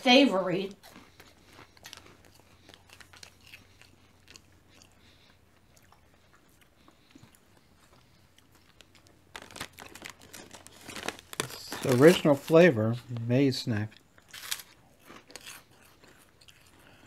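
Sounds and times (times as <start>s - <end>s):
faint crunching of puffs: 0.7s - 17.0s
snack packet rustling: 0.8s - 13.4s, 14.1s - 17.0s.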